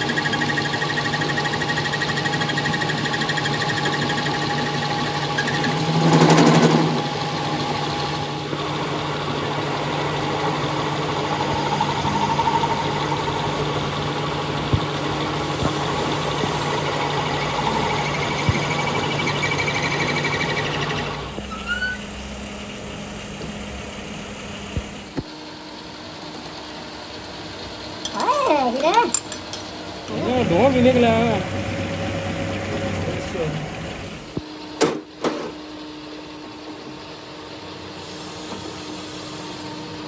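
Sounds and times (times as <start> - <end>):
tractor diesel engine idling: 7.0 - 25.2.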